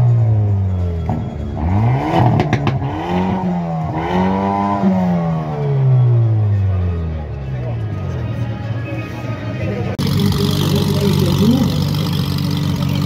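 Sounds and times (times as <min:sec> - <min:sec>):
car engine revving: 0:01.0 - 0:06.9, 0:10.0 - 0:13.0
exhaust cracks: 0:10.0 - 0:13.0.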